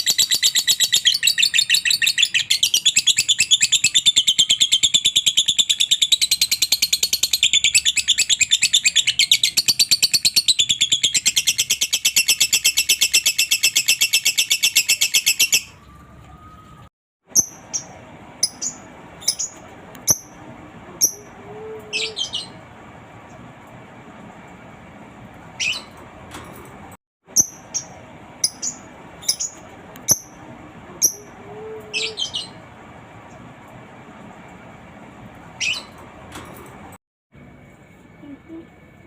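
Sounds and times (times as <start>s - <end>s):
lovebird chirping: 17.3s - 20.4s, 21.0s - 22.6s, 25.6s - 26.0s, 27.3s - 30.4s, 31.0s - 32.6s.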